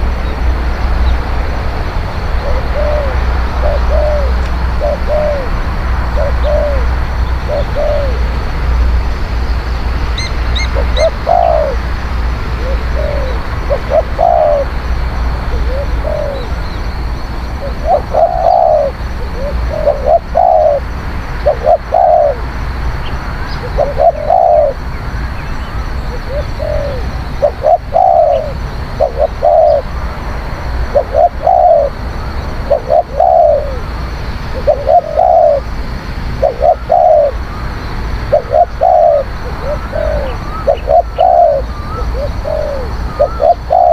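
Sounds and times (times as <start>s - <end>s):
dove cooing: 2.4s - 8.4s, 10.2s - 16.6s, 17.6s - 22.5s, 23.6s - 24.8s, 26.1s - 30.0s, 30.8s - 32.0s, 32.6s - 35.7s, 36.4s - 37.6s, 38.2s - 43.9s.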